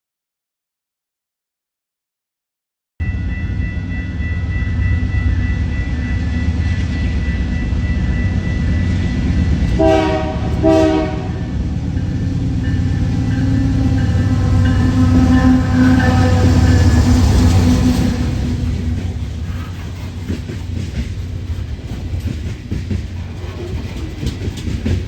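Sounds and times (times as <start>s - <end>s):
train rumbling past: 3.0s - 25.0s
locomotive horn blasts: 9.7s - 11.6s, 12.8s - 19.6s.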